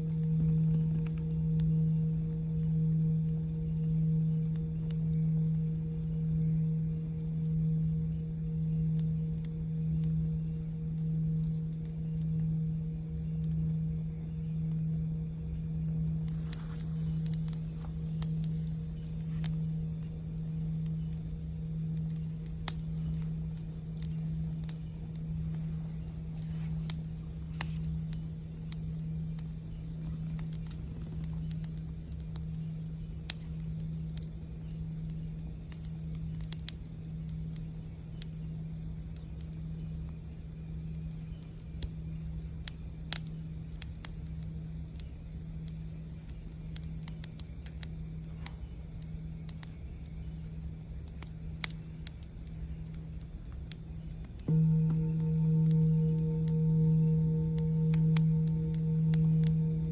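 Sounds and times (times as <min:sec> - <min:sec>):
campfire crackling and popping: 0:00.0 - 0:59.9
singing bowl humming: 0:00.0 - 0:59.9.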